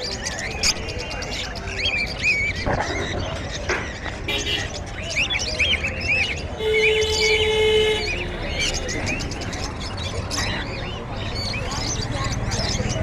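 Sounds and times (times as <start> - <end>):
caged birds chirping: 0.0 - 13.0.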